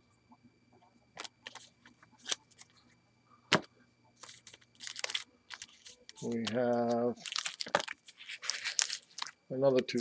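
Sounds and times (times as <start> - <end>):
plastic wrapper crinkling: 4.2 - 10.0.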